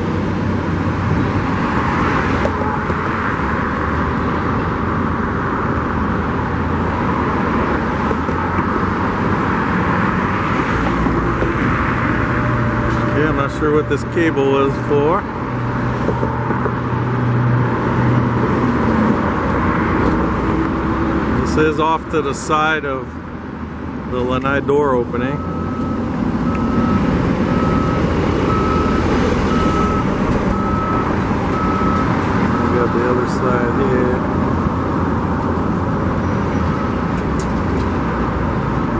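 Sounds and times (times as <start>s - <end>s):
heavy truck engines running: 0.0s - 38.9s
reversing alarm beeping: 25.0s - 35.9s.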